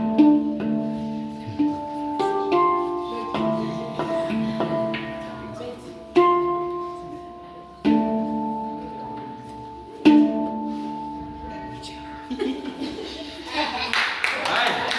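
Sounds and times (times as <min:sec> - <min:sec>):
handpan notes ringing: 0:00.0 - 0:13.5.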